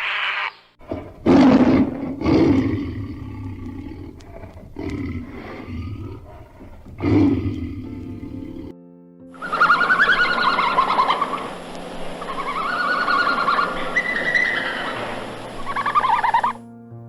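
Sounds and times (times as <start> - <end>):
bird warbling trills: 9.4 - 16.6.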